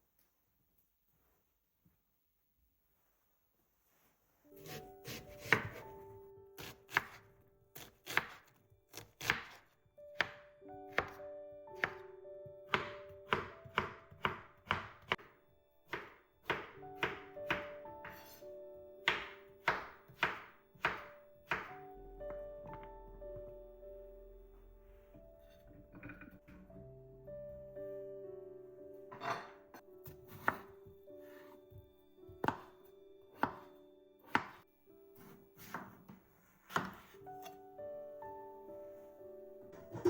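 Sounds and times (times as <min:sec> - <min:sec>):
soft instrumental music: 0:04.4 - 0:40.0
knife chopping on cutting board: 0:04.6 - 0:05.9, 0:06.6 - 0:07.2, 0:07.8 - 0:09.6, 0:10.2 - 0:11.2, 0:19.0 - 0:21.7, 0:29.3 - 0:30.7, 0:32.4 - 0:32.7, 0:33.4 - 0:33.7, 0:34.3 - 0:34.6, 0:36.7 - 0:37.5.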